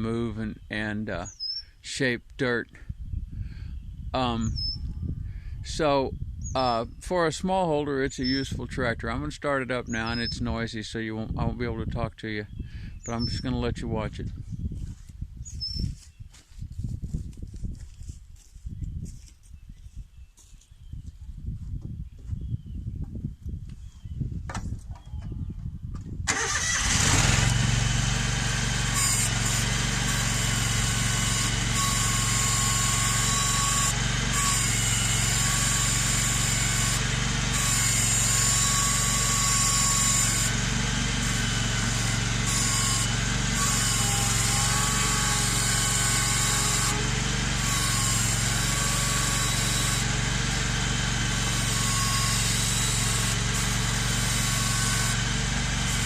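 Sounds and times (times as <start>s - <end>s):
tractor engine starting and running: 26.2s - 56.0s.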